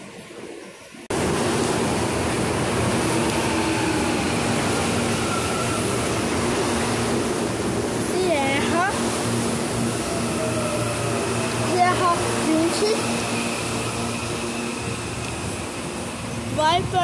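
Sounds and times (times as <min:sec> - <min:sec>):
electric train passing close by: 0:00.0 - 0:17.0.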